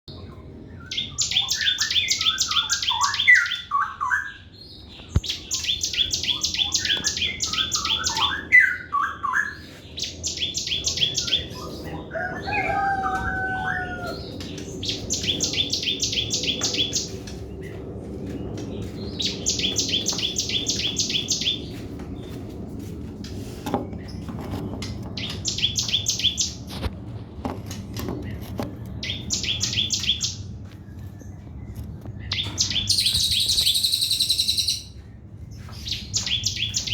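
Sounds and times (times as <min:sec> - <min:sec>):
jumbled bird chirps: 0:00.2 - 0:17.3, 0:32.2 - 0:35.1
bird song rapid high notes: 0:32.3 - 0:35.0.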